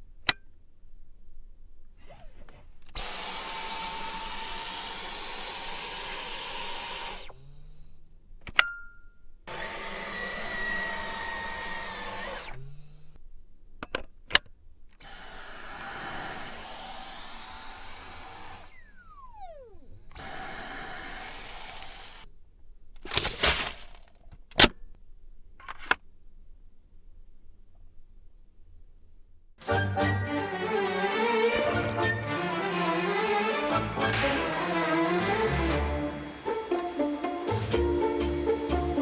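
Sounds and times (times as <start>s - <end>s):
vacuum motor whining: 2.0s - 8.0s, 9.5s - 13.2s, 15.0s - 22.3s, 30.3s - 39.0s.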